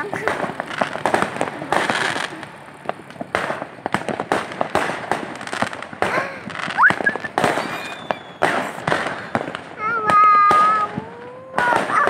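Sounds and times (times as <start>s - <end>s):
fireworks cracking and banging: 0.0s - 12.0s
fireworks whistle rising: 6.6s - 9.2s.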